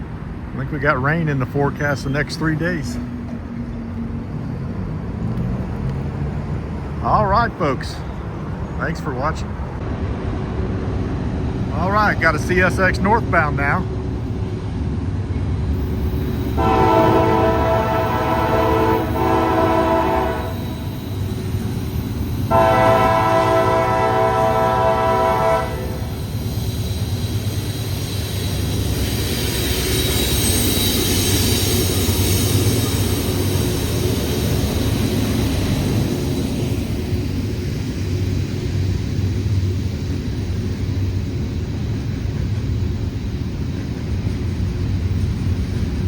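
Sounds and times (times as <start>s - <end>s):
freight train rumbling past: 0.0s - 46.0s
locomotive air horn blasts: 16.6s - 21.0s, 22.5s - 26.2s.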